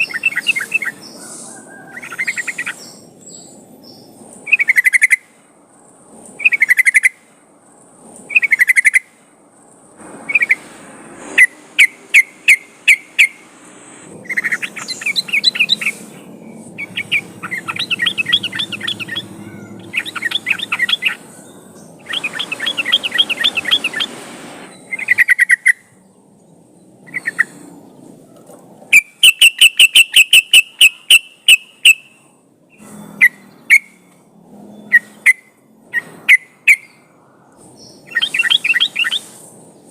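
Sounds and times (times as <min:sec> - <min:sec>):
bulbul song: 0:00.0 - 0:05.4, 0:08.3 - 0:09.2, 0:10.0 - 0:26.0, 0:28.9 - 0:34.1, 0:37.8 - 0:39.5.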